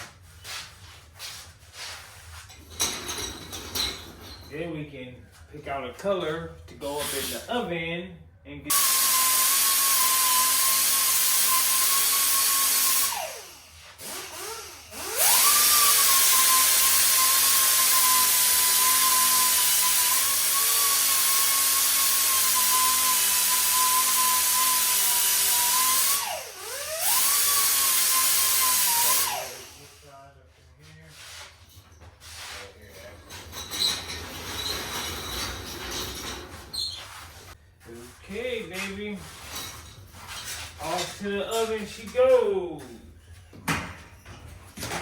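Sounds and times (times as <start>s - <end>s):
angle grinder grinding steel: 8.7s - 30.0s.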